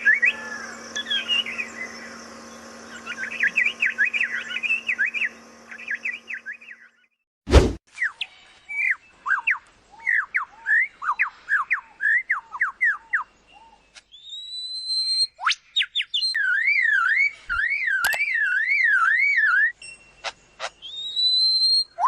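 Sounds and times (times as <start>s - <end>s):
bird warbling whistle: 0.0s - 2.2s, 2.9s - 6.8s, 14.2s - 19.8s, 20.6s - 22.0s
bird whistled calls: 0.0s - 6.9s, 8.0s - 22.0s.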